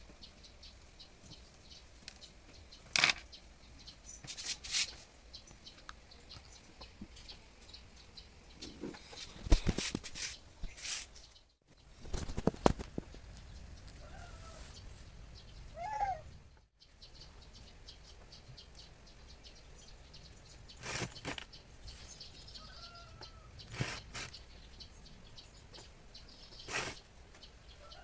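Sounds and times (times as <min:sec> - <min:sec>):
short bird calls: 0:15.7 - 0:16.4.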